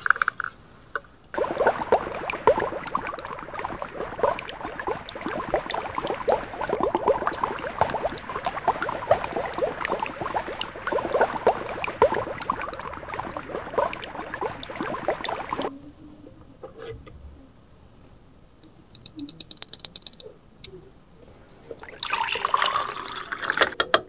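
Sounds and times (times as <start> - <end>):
air bubbling in bottle: 1.3 - 15.7, 21.8 - 23.8
water pouring into plastic cup: 1.4 - 15.7, 21.8 - 23.8.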